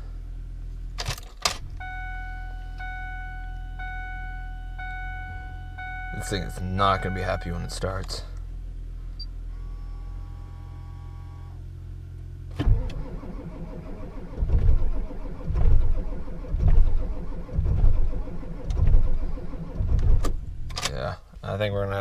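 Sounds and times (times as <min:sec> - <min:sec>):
low hum: 0:00.0 - 0:21.6
diesel engine cranking: 0:12.4 - 0:21.2.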